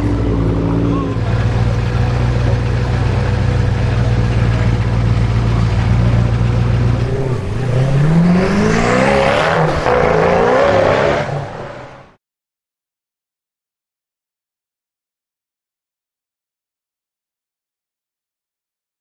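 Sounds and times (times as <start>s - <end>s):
car engine idling: 0.0s - 12.1s
car accelerating away: 0.0s - 12.2s.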